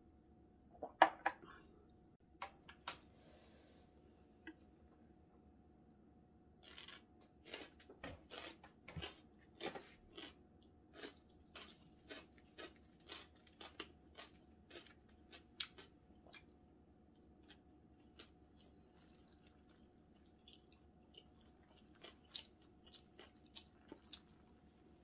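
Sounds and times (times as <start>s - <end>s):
crunchy chewing: 6.6s - 25.0s.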